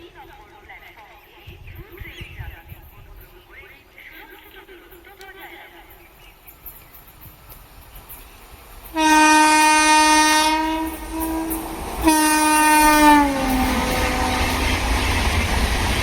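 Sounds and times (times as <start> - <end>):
train rumbling past: 0.0 - 16.0
locomotive horn blasts: 8.9 - 15.1.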